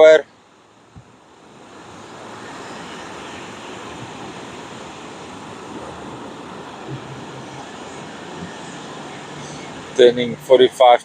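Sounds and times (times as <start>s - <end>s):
wind on microphone: 0.8s - 10.5s
surf breaking on beach: 0.8s - 11.0s.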